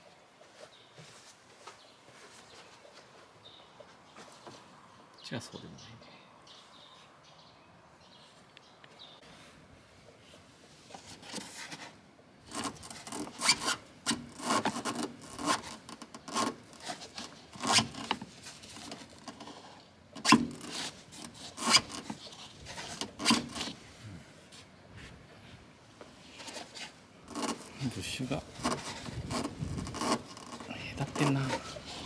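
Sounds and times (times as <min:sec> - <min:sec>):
rough scraping strokes: 0:26.2 - 0:32.0.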